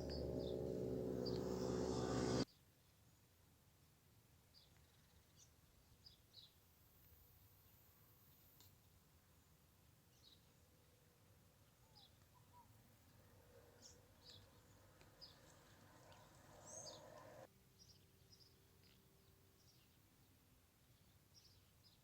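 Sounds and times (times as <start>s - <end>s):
faint bird chirps: 11.6s - 20.0s
faint hiss: 12.8s - 17.5s.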